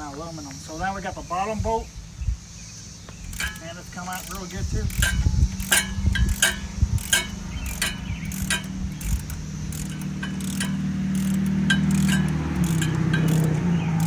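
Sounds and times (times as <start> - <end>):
steady low hum: 0.7 - 14.0
metallic wrench clinks: 3.3 - 14.0.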